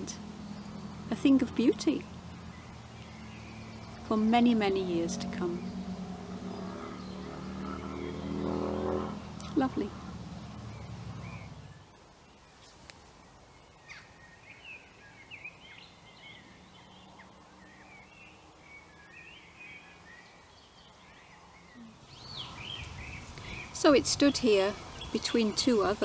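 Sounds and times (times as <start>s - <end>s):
low steady hum: 0.0s - 11.9s
birds chirping and warbling: 0.0s - 12.4s, 13.6s - 26.0s.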